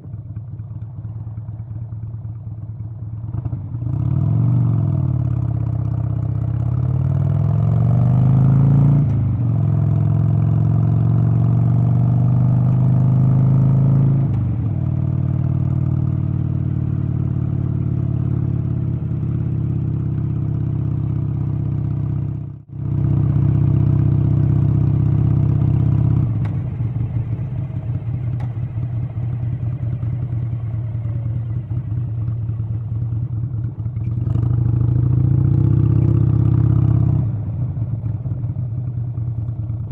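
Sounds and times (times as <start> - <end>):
engine running: 22.9 - 36.0.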